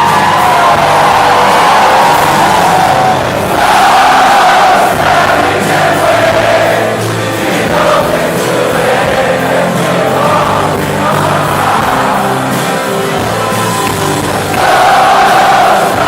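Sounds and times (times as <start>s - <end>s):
crowd singing along: 0.0s - 16.0s
live rock band: 0.0s - 16.0s.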